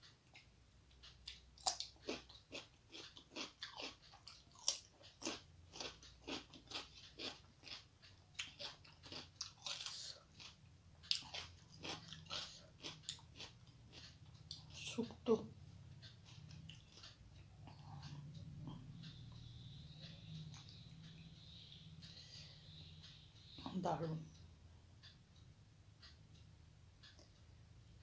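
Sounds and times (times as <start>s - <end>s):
person chewing crunchy food: 1.2s - 14.8s, 16.0s - 19.6s.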